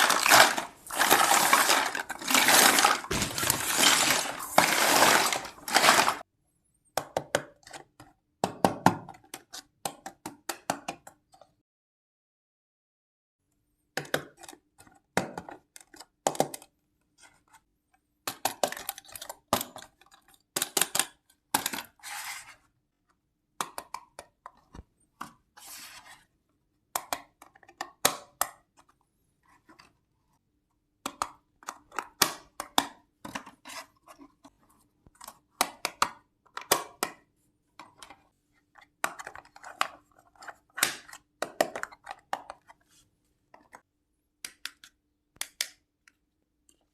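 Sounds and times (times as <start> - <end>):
scraping or rustling: 0.0 - 6.2
toy pieces clicking and clattering: 0.0 - 6.2.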